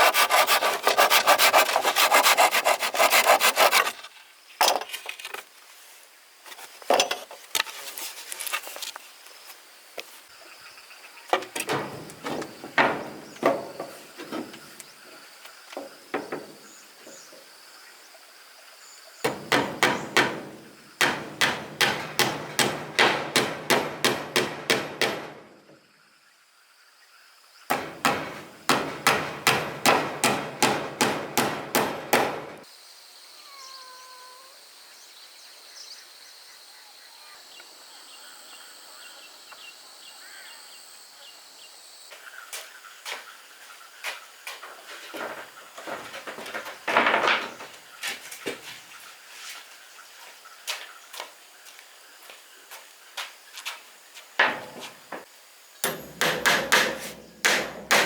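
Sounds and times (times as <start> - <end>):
insects buzzing: 8.0 - 48.2.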